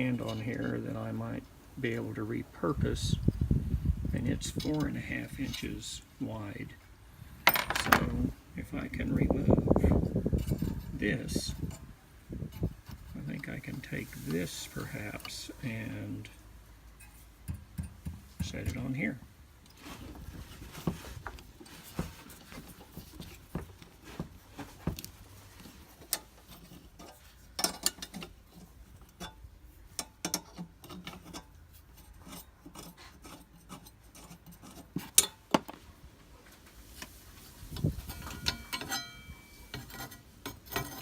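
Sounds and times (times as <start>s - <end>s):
metal clicks and scrapes: 9.4s - 11.9s, 24.9s - 35.8s, 36.8s - 41.0s
ringing metal clink: 38.1s - 39.8s.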